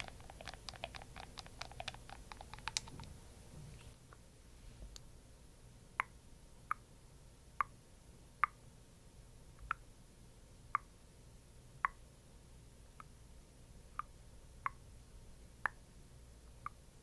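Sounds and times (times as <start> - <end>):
patting on skin: 0.0 - 3.1.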